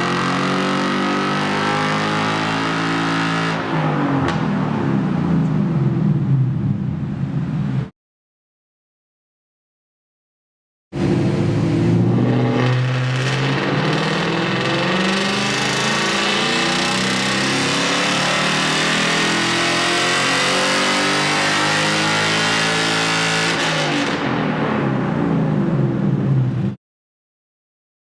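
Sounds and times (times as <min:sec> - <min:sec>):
car engine revving under load: 0:11.0 - 0:24.2.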